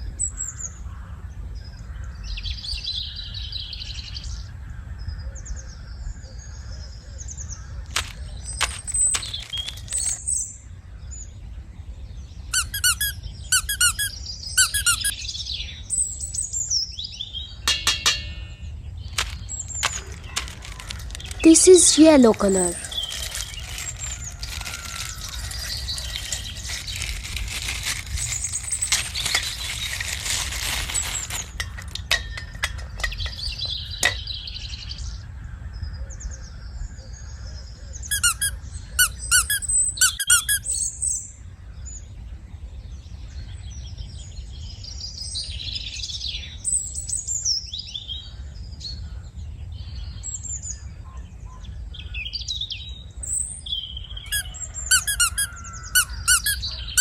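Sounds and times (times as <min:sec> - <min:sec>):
plastic crinkling: 0:07.9 - 0:10.3, 0:19.1 - 0:33.4
light rustling: 0:07.9 - 0:10.4, 0:19.1 - 0:22.0, 0:22.7 - 0:34.2
sharp high squeaks: 0:12.6 - 0:15.1, 0:38.1 - 0:40.7, 0:54.3 - 0:57.0.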